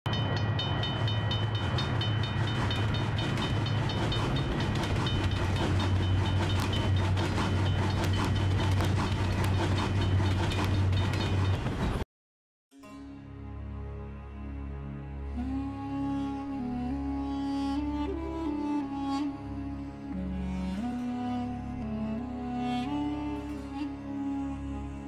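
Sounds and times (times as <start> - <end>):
high ringing and clicking: 0.1 - 11.7
train rumble: 0.1 - 12.0.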